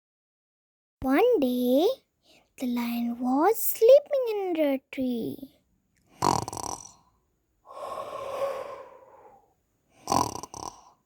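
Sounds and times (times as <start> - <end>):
person imitating snoring: 6.2 - 7.0, 7.7 - 11.0.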